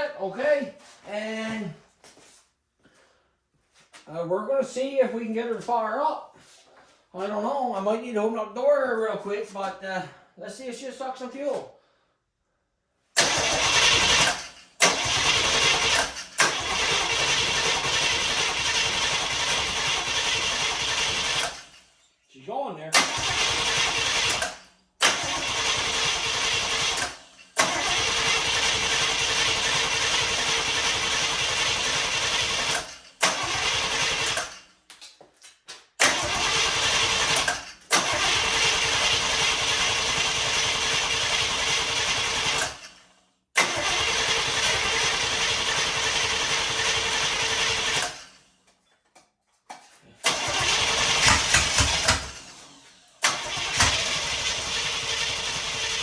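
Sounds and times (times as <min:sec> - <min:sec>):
engine starter cranking: 0:13.2 - 0:22.0, 0:22.9 - 0:34.8, 0:36.0 - 0:48.5, 0:50.2 - 0:56.0.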